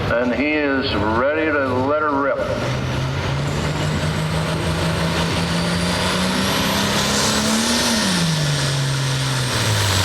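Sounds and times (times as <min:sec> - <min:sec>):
tractor diesel engine under load: 0:00.0 - 0:10.0.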